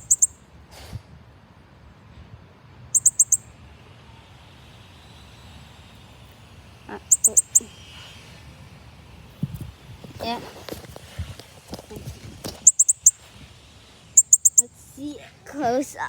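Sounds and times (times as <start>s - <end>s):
bird chirping high and sharp: 0.0s - 0.4s, 3.0s - 3.5s, 7.0s - 7.7s, 12.6s - 13.2s, 14.2s - 14.7s.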